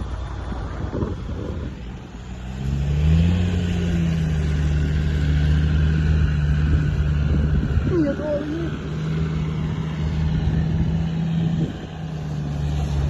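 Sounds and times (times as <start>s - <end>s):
engine revving: 0.0s - 13.0s.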